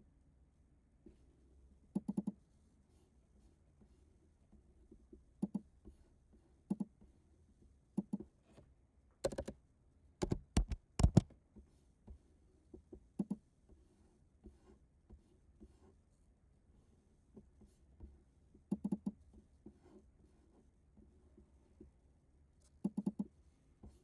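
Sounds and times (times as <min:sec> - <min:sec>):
mouse buttons clicking: 0:02.0 - 0:02.4, 0:09.2 - 0:09.6, 0:10.2 - 0:11.3
computer keys clicking: 0:09.2 - 0:09.6, 0:10.2 - 0:11.3.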